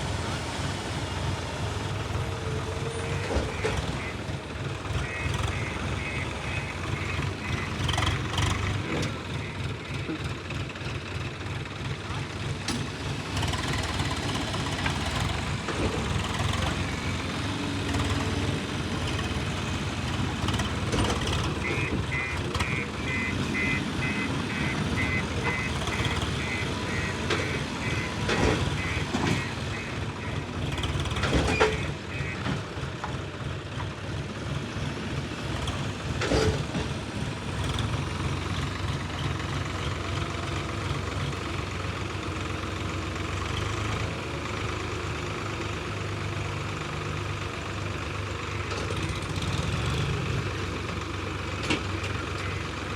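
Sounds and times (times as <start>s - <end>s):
heavy diesel machinery running: 0.0s - 52.9s
reversing alarm beeping: 21.6s - 30.4s.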